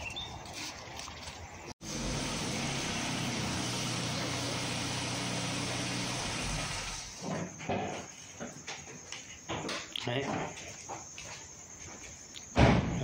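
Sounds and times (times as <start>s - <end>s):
loud hiss: 1.8s - 7.3s.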